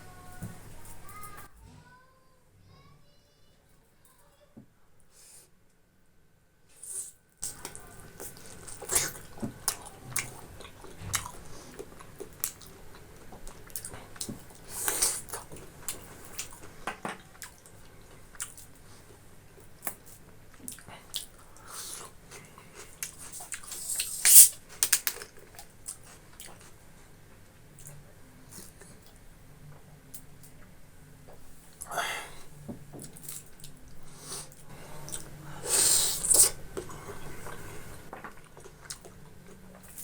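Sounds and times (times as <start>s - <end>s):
person chewing food: 7.0s - 26.8s, 33.0s - 40.0s.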